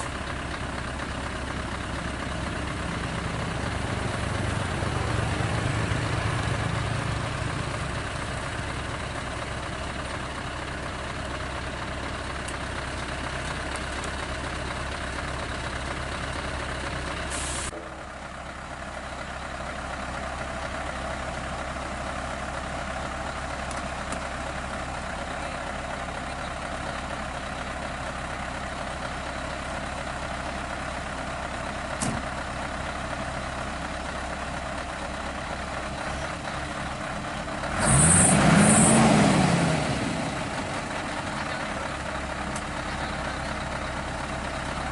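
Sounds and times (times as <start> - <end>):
truck engine running: 0.0 - 44.9
short hiss: 17.3 - 17.7.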